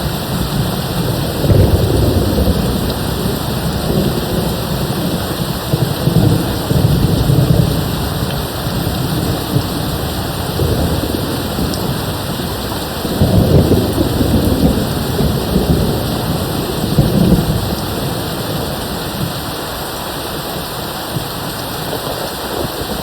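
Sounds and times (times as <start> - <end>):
distant thunder rumbling: 0.0 - 23.0
steady rain: 0.0 - 23.0.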